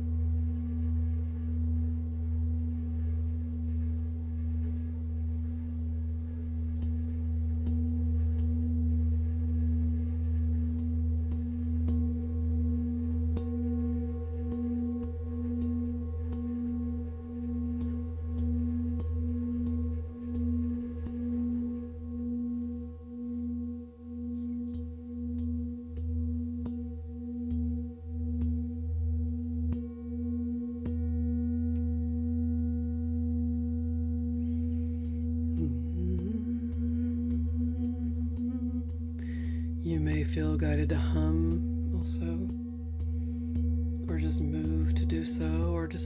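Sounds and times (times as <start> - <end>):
singing bowl ringing: 0.0 - 46.0.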